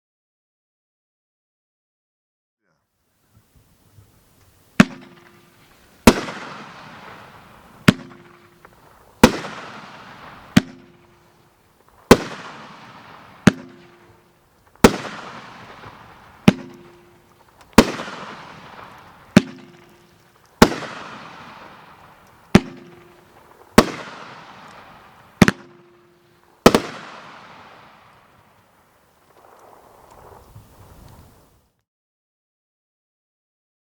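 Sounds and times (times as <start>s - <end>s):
firework bursts with crackling: 3.5s - 31.6s
firework launch bangs: 4.7s - 26.0s, 26.6s - 31.4s.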